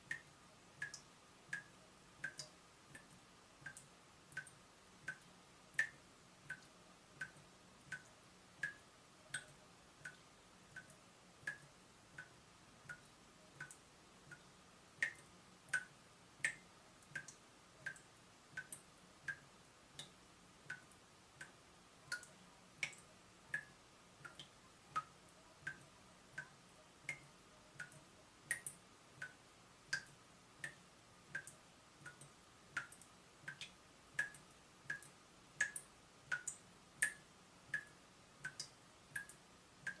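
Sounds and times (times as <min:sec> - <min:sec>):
water dripping from tap: 0:00.0 - 0:40.0.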